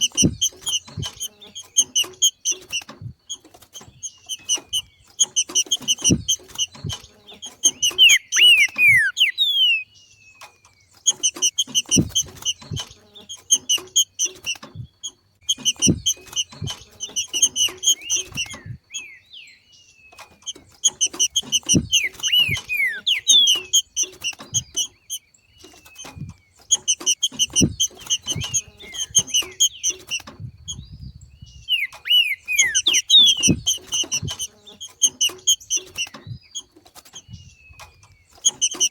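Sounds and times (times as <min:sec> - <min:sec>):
bird chattering and whistling: 0:03.8 - 0:10.0, 0:15.4 - 0:19.7, 0:20.4 - 0:38.9.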